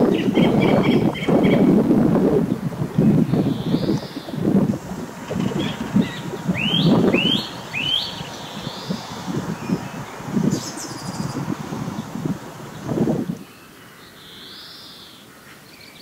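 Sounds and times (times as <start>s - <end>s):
wind rumbling on microphone: 0.0s - 13.5s
bird whistling rising notes: 5.4s - 12.9s.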